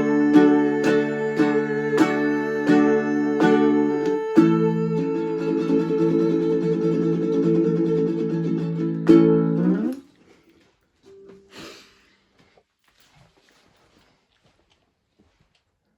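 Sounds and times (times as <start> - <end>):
acoustic strings strummed: 0.0 - 10.0.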